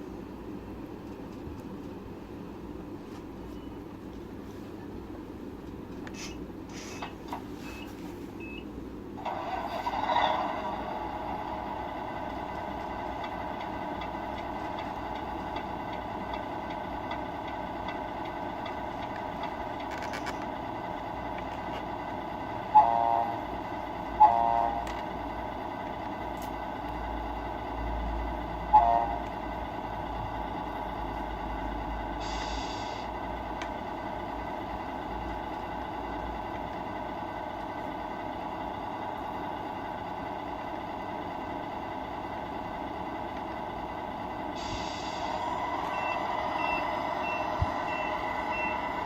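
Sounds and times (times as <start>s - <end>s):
simulated engine sound: 9.2s - 49.0s
air horn blasts: 22.7s - 23.4s, 24.2s - 24.9s, 28.7s - 29.2s.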